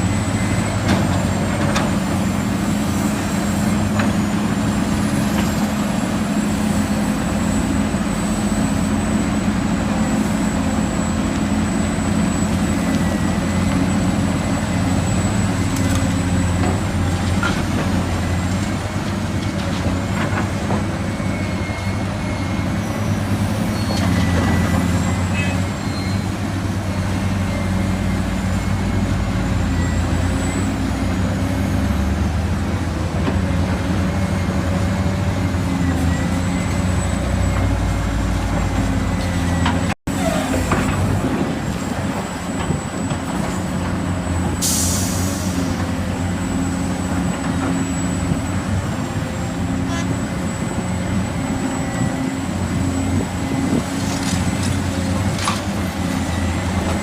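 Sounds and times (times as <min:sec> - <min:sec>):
diesel engines running: 0:00.0 - 0:57.0
air brake hiss: 0:44.6 - 0:45.7.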